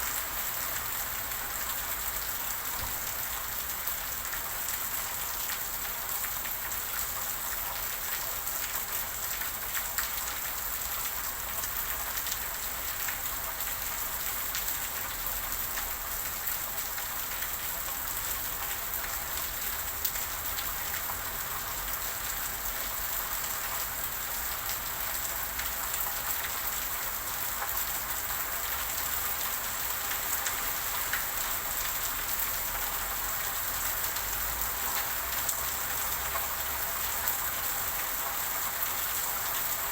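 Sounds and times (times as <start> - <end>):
steady rain falling: 0.0 - 39.9
rain drop ticks: 30.1 - 38.5.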